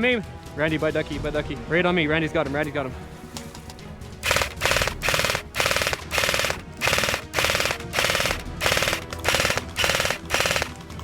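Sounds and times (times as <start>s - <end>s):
airsoft machine gun bursts: 4.2s - 11.0s.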